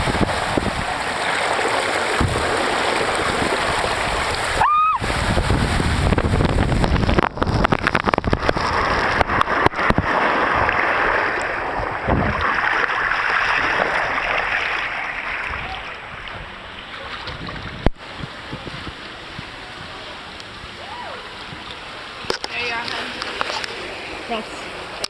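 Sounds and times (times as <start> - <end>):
wind buffeting microphone: 0.0 - 12.6, 15.3 - 20.1
water rushing and splashing: 0.0 - 25.0.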